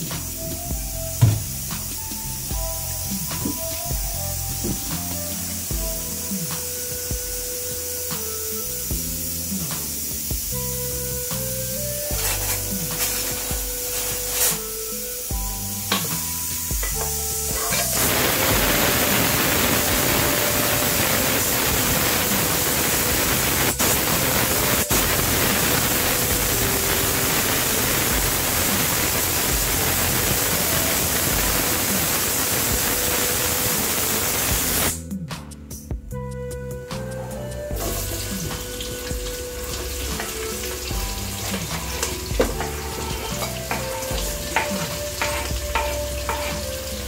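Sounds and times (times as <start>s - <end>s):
onions sizzling in hot oil: 0.0s - 35.0s, 37.6s - 47.0s
background music: 0.0s - 47.0s.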